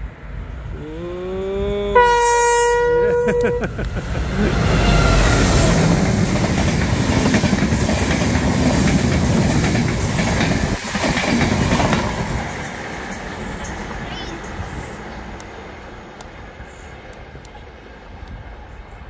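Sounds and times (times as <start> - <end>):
train rushing past: 0.0 - 19.0
train horn blast: 1.9 - 3.8.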